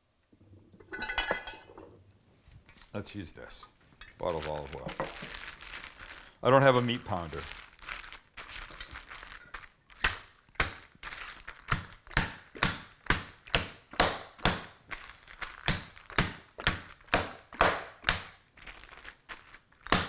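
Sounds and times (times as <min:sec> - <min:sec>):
bottle pounding meat in plastic bag: 0:04.1 - 0:20.0.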